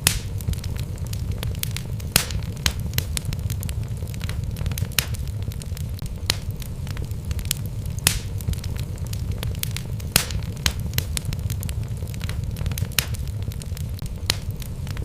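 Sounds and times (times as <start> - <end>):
burning wood crackling and popping: 0.0 - 15.0
fire flames rumbling: 0.0 - 15.0.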